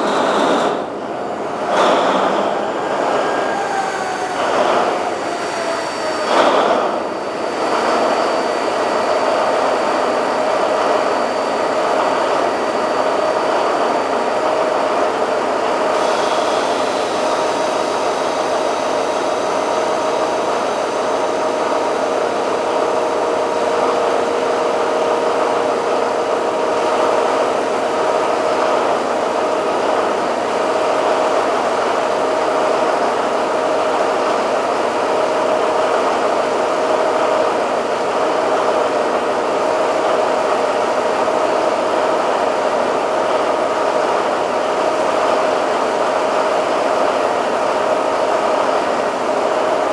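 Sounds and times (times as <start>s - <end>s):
diesel engine running steadily: 0.0s - 49.9s.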